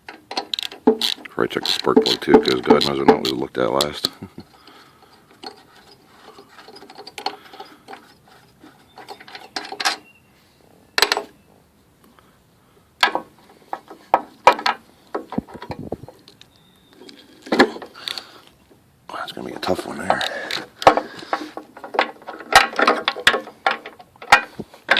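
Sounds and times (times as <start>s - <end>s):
metal tools clanking: 0.3s - 10.2s
socket ratchet wrench clicking: 0.4s - 3.0s.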